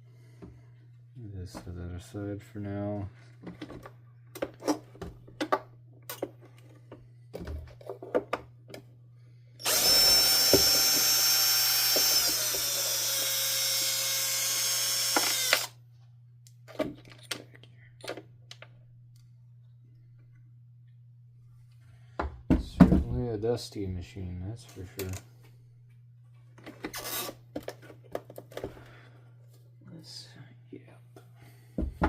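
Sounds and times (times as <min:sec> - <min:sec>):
electric drill whining: 0:09.6 - 0:15.8, 0:27.0 - 0:27.4.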